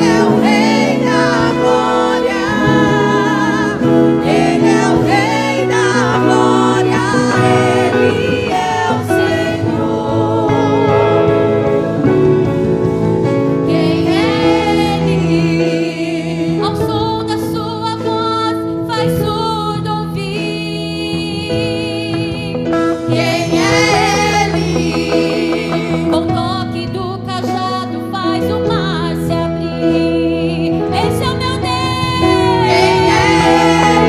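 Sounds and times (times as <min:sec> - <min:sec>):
women's group singing gospel: 0:00.0 - 0:18.5, 0:22.8 - 0:27.6, 0:30.7 - 0:34.0
instrumental accompaniment: 0:00.0 - 0:20.1, 0:20.8 - 0:34.0.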